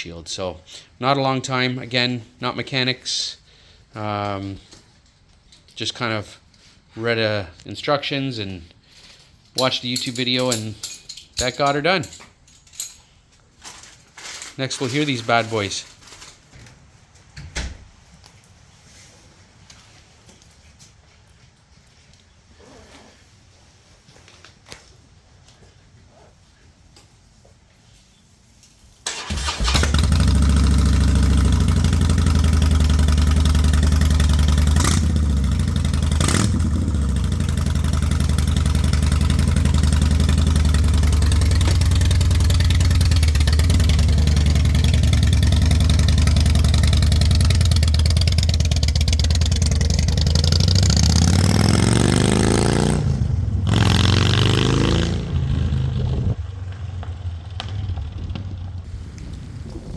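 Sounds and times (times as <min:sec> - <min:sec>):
motorcycle exhaust rumble revving: 0:29.8 - 0:59.9.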